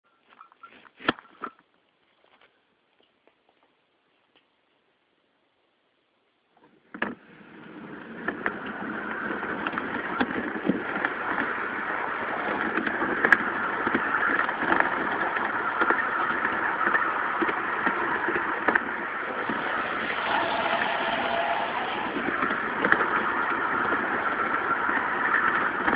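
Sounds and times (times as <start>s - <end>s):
model train rumble and whir: 6.7s - 25.9s.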